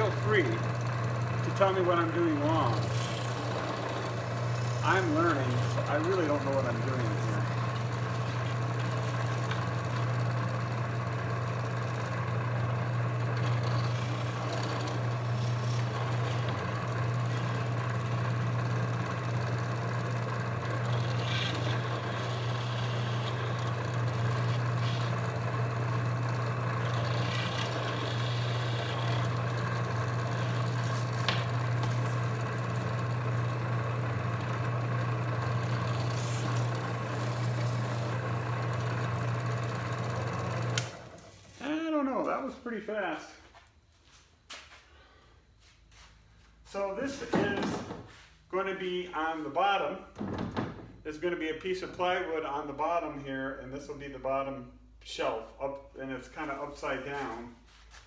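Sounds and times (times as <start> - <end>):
drill scraping plywood: 0.0 - 41.7, 46.8 - 48.2
drill press motor humming: 0.0 - 42.3.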